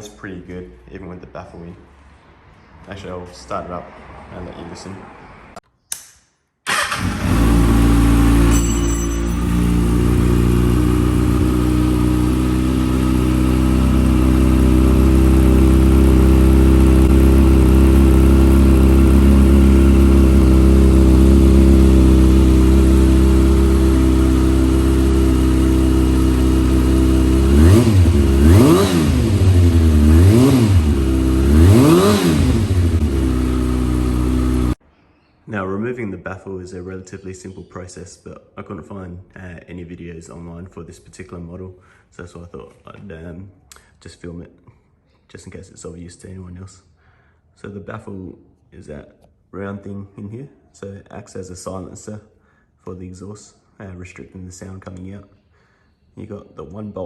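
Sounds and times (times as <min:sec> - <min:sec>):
motorcycle engine idling and revving: 0:06.7 - 0:34.8.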